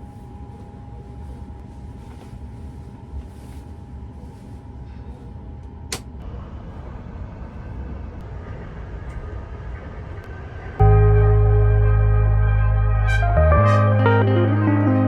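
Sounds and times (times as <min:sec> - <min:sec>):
train carriage rumble and hum: 0:00.0 - 0:15.0
steady whine: 0:10.8 - 0:15.0.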